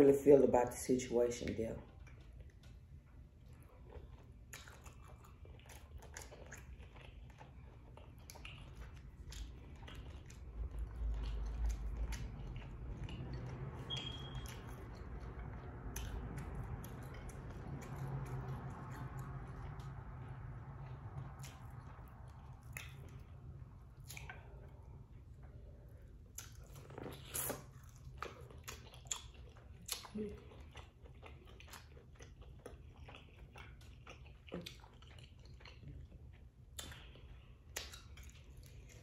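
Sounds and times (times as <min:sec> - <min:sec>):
steady low hum: 0:00.0 - 0:39.0
person chewing and biting: 0:03.5 - 0:39.0
wet mouth clicks: 0:13.1 - 0:15.2, 0:22.6 - 0:23.2, 0:26.4 - 0:27.7.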